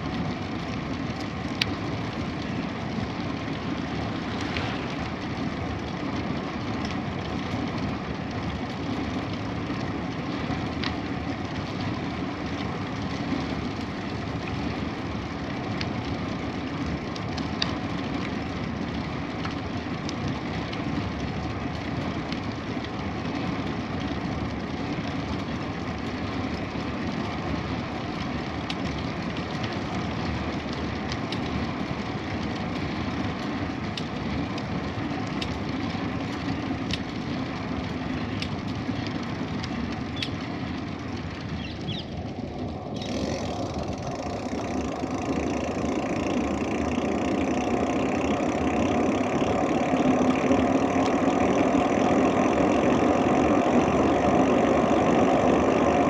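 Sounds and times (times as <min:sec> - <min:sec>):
bicycle tyres rolling on road: 0:00.0 - 0:56.0
small ticks: 0:28.1 - 0:37.2, 0:37.8 - 0:42.2, 0:43.0 - 0:54.2.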